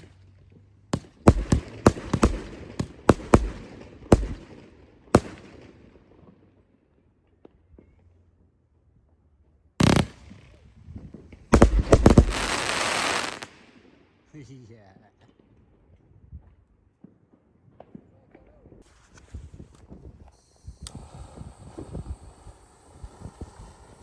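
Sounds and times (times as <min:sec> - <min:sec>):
fireworks bangs: 0:00.9 - 0:06.4, 0:09.8 - 0:14.0
fireworks crackling: 0:01.0 - 0:05.9, 0:09.8 - 0:14.0.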